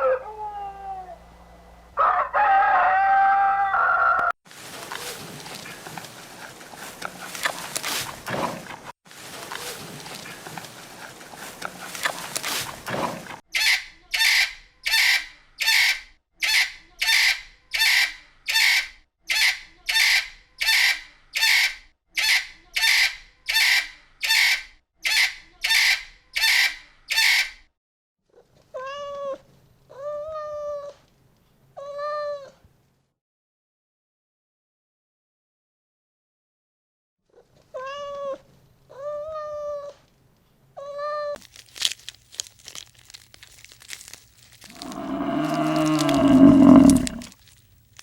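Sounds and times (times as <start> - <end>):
harsh animal calls: 44.6 - 47.4
rising and falling animal calls: 44.7 - 47.3.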